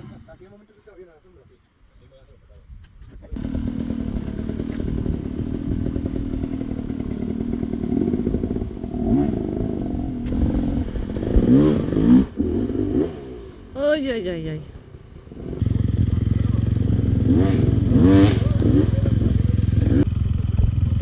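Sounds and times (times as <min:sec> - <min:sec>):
motorcycle engine revving: 0:00.0 - 0:00.4, 0:03.4 - 0:21.0.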